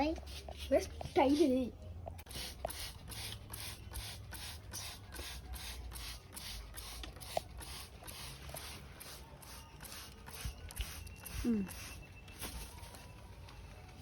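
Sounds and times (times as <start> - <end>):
spray bottle hissing sprays: 2.3 - 12.8.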